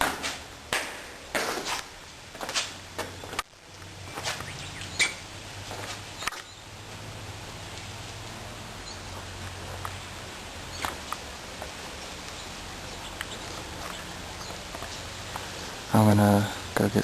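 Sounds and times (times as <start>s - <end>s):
faint bird chirps: 4.3s - 5.3s.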